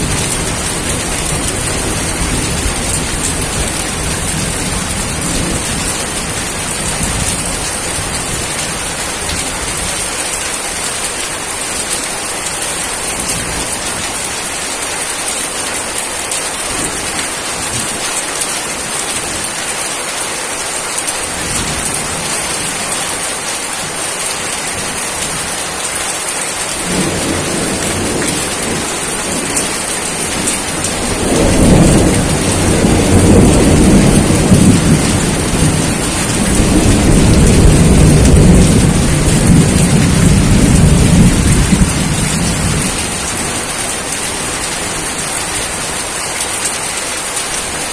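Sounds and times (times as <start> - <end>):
steady rain hiss: 0.0 - 47.9
low thunder rumble: 26.8 - 43.4.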